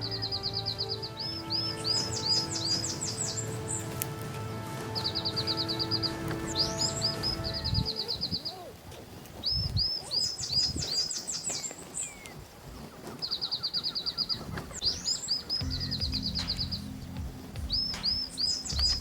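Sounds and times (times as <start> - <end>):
background music: 0.0 - 8.1, 15.5 - 19.0
songbirds trilling and whistling: 0.0 - 19.0.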